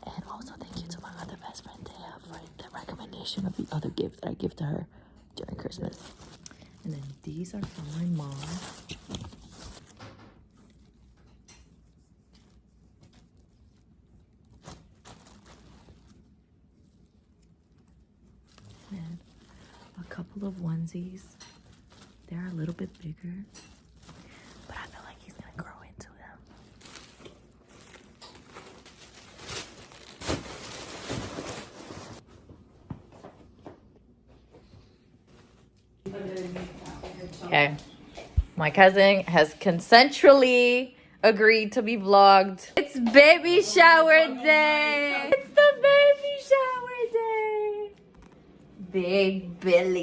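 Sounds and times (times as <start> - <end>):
packaging rustling: 5.9 - 10.0, 12.4 - 17.4, 26.4 - 32.4
fabric rustling: 26.5 - 32.5.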